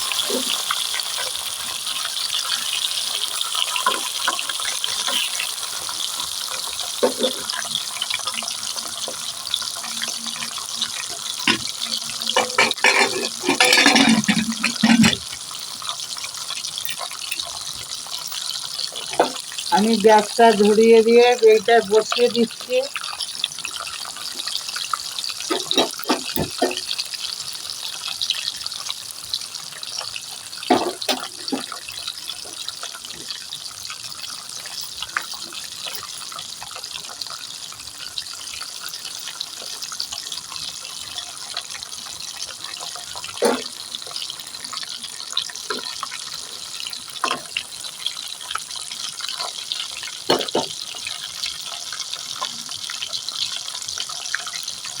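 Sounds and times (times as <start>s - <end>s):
fish frying in hot oil: 0.0s - 55.0s
utensil clinking against pan: 11.4s - 15.4s, 25.5s - 26.8s.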